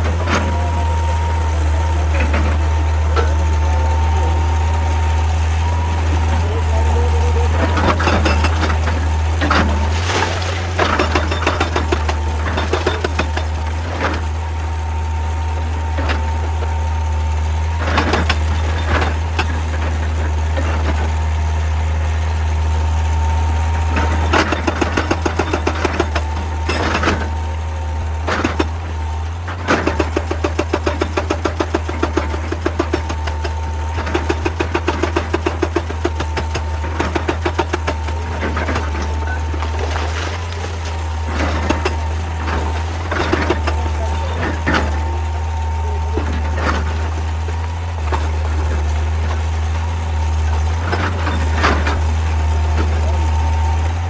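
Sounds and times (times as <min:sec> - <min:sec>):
excavator engine running: 0:00.0 - 0:54.0
metal and rock clunks: 0:06.4 - 0:14.4, 0:17.7 - 0:21.2, 0:23.8 - 0:27.5, 0:28.1 - 0:54.0.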